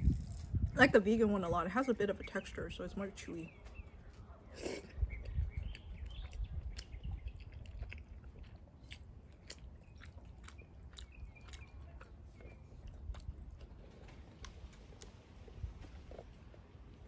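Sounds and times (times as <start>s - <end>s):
close chewing of noodles: 3.6s - 17.0s
slurp: 4.5s - 5.4s.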